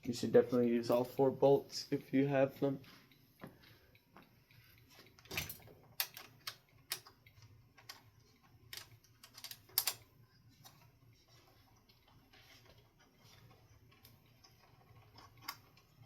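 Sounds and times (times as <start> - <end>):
metal hardware clicks and taps: 5.0 - 8.0, 8.7 - 10.0.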